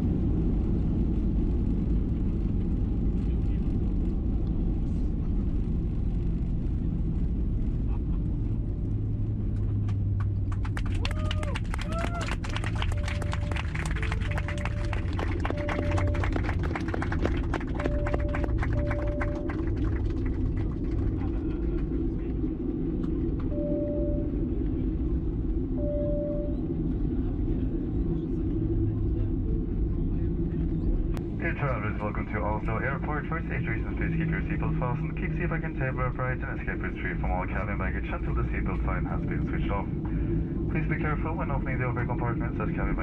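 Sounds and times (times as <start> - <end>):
airplane cabin rumble: 0.0 - 43.0
low steady hum: 0.0 - 43.0.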